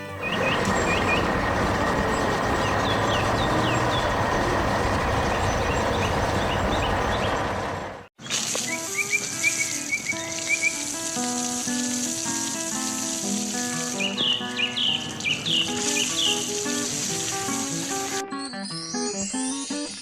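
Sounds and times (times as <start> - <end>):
tractor engine running: 0.0 - 8.6.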